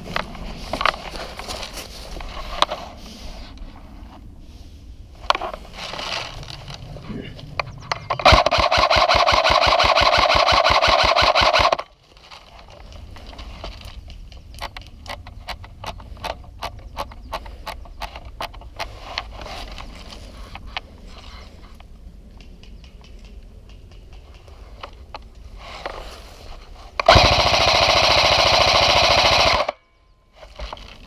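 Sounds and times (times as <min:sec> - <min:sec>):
airsoft gun full-automatic burst: 0:08.2 - 0:11.9, 0:27.0 - 0:29.8.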